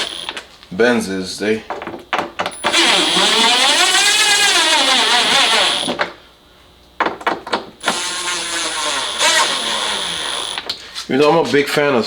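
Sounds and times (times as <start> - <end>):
cordless drill motor running: 0.0 - 0.4, 2.5 - 6.1, 7.8 - 10.7.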